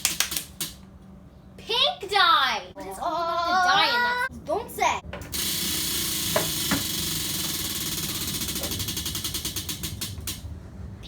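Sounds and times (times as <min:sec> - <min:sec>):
prize wheel ticking: 0:05.4 - 0:10.4.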